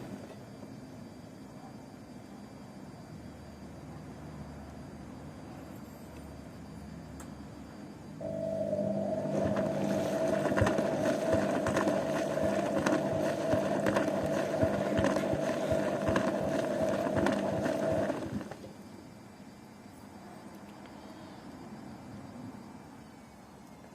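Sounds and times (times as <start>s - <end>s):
washing machine motor hum: 6.4s - 19.8s.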